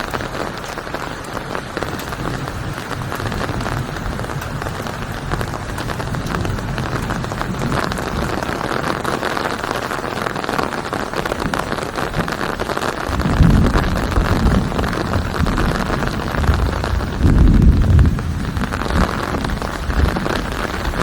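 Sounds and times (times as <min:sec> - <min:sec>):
heavy rain pattering: 0:00.0 - 0:21.0
deep rumble of thunder: 0:01.9 - 0:09.7, 0:13.1 - 0:21.0.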